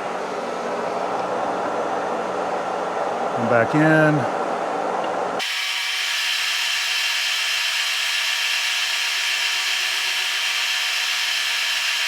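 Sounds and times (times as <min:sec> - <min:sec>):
machine running hum: 0:04.3 - 0:12.0
milling machine cutting: 0:05.4 - 0:12.0.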